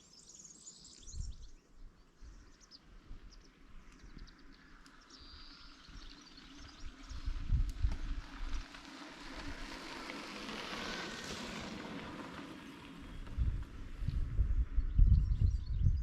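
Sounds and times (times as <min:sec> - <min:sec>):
wind buffeting microphone: 0:01.0 - 0:01.6, 0:05.2 - 0:09.8, 0:13.0 - 0:16.0.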